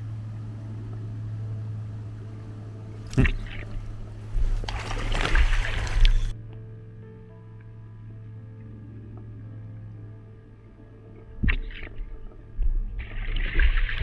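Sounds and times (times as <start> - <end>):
steady low hum: 0.0 - 14.0
water splashing and churning: 2.9 - 6.4, 11.4 - 14.0.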